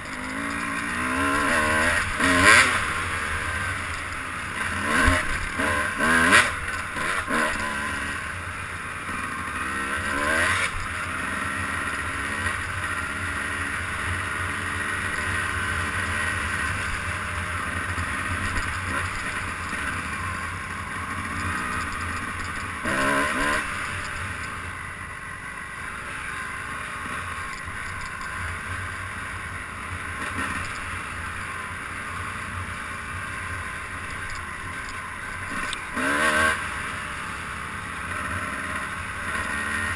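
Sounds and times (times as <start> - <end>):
vehicle engine revving: 0.0 - 8.4, 9.0 - 17.0, 21.0 - 24.5, 34.1 - 39.9.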